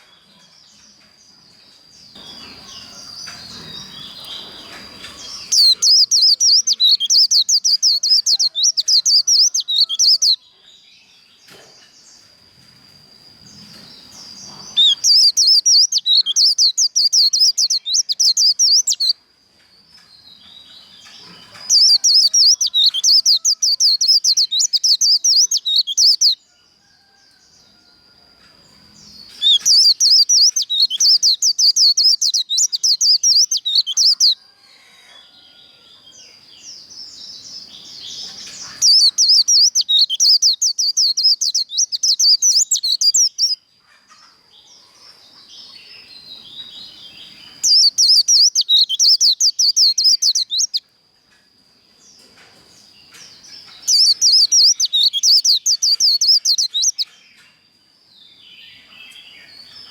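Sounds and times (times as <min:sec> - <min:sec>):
soft bird twittering: 0:02.1 - 0:10.4, 0:13.6 - 0:19.2, 0:20.5 - 0:26.4, 0:29.0 - 0:34.4, 0:37.1 - 0:43.6, 0:45.6 - 0:50.8, 0:53.0 - 0:57.6
bird fast chattering song: 0:02.2 - 0:10.4, 0:14.0 - 0:19.1, 0:20.6 - 0:26.4, 0:29.2 - 0:34.4, 0:37.8 - 0:43.6, 0:47.5 - 0:50.8, 0:53.1 - 0:57.2.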